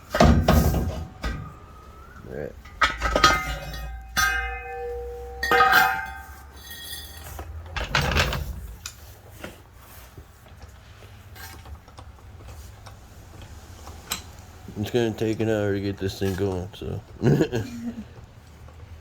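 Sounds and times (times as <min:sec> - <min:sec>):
metal tools clanking: 0:00.0 - 0:09.0
metal scraping clatter: 0:00.0 - 0:09.6.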